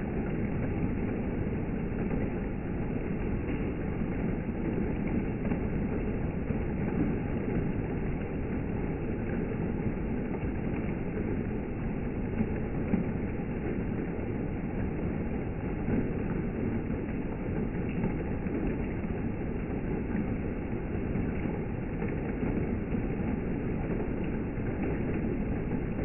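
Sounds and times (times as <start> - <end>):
rain ticks: 0.0 - 26.0
steady rain falling: 0.0 - 26.0.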